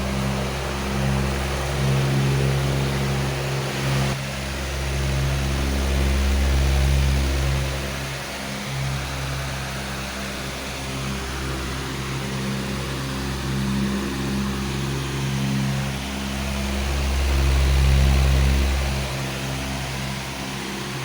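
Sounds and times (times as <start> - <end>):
electric fan air whoosh: 0.0 - 21.0
low motor hum: 0.0 - 21.0.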